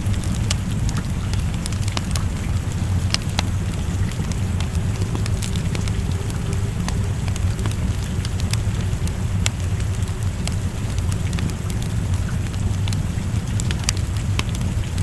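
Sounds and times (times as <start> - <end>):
rain: 0.0 - 15.0
wood fire crackling: 0.0 - 15.0.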